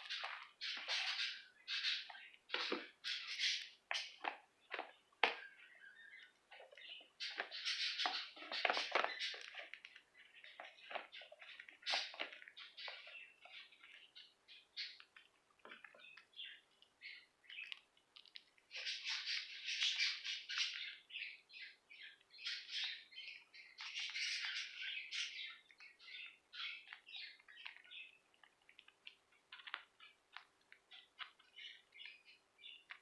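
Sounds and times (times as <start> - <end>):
budgerigars chattering: 0.1 - 4.2, 5.8 - 9.4, 18.8 - 28.0.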